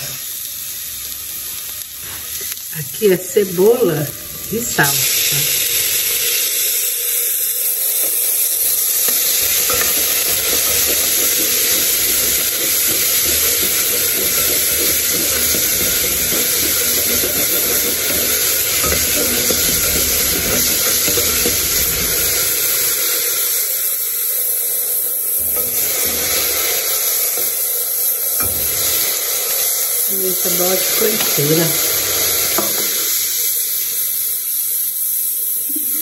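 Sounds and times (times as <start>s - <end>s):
meat sizzling in a pot: 0.0s - 36.0s
spoon scraping pot: 9.1s - 22.5s.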